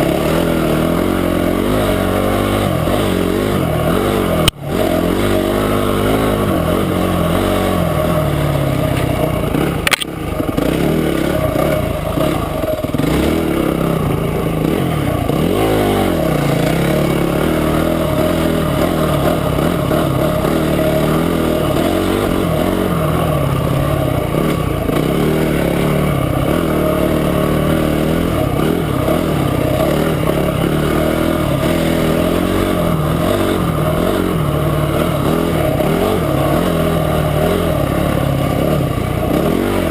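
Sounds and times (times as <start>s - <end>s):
motorcycle engine revving: 0.0s - 39.9s
sharp click: 9.8s - 10.2s.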